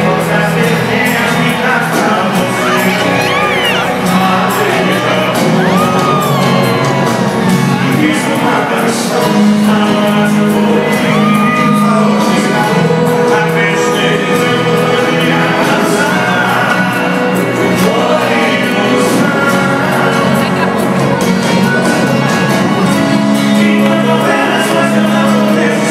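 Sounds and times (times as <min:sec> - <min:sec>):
live band with singing: 0:00.0 - 0:25.9
audience shouting and whooping: 0:02.2 - 0:08.2, 0:10.7 - 0:12.8, 0:20.0 - 0:23.0
gliding high calls: 0:02.5 - 0:04.7.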